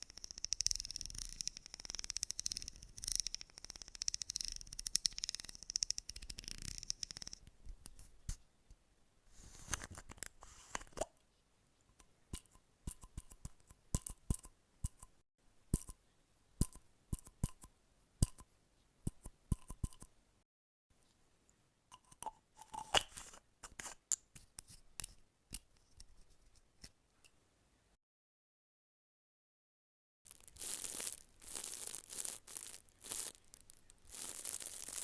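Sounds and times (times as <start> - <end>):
scratchy rustle: 30.3 - 35.0.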